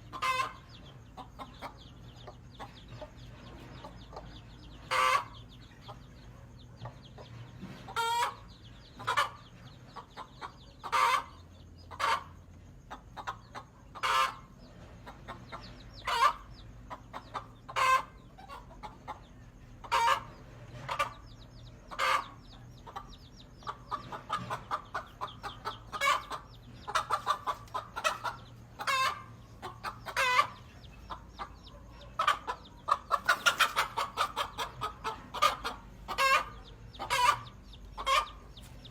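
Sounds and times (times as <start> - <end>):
hen clucking: 0.0 - 38.9.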